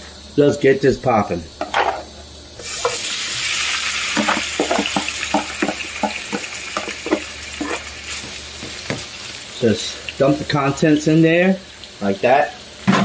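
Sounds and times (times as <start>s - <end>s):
shrimp sizzling in frying pan: 1.6s - 13.0s.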